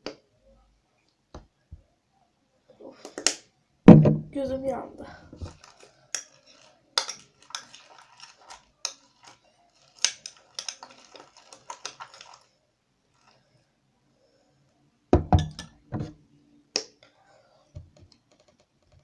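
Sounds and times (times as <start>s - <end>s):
spoon scraping mixing bowl: 5.4s - 12.5s.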